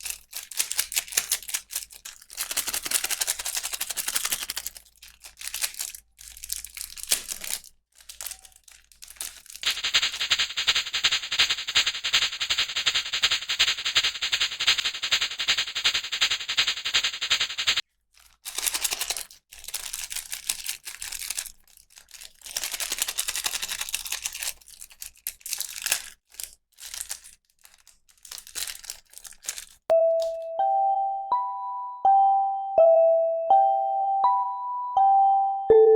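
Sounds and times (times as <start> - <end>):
plastic packaging crinkling and tearing: 0.0 - 29.9
bright chiming notes: 29.9 - 35.9.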